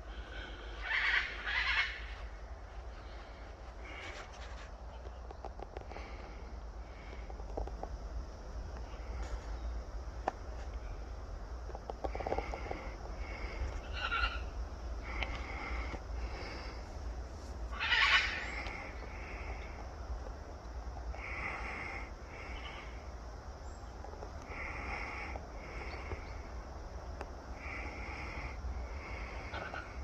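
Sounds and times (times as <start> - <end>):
parrot squawk: 0.8 - 2.1, 17.7 - 18.4
parrot calling: 0.8 - 2.2, 13.8 - 14.5, 17.7 - 19.0.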